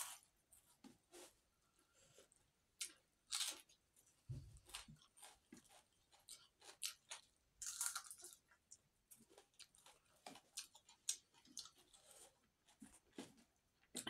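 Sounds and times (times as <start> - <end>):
person chewing: 4.6 - 14.0.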